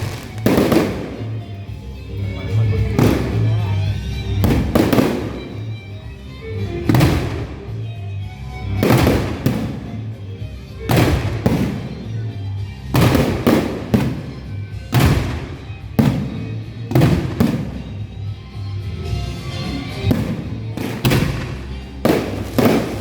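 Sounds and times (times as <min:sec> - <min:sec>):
fireworks exploding: 0:00.0 - 0:01.8, 0:02.4 - 0:03.6, 0:04.4 - 0:05.8, 0:06.8 - 0:07.8, 0:08.7 - 0:10.2, 0:10.9 - 0:12.3, 0:12.9 - 0:18.3, 0:19.0 - 0:23.0
music: 0:00.0 - 0:23.0.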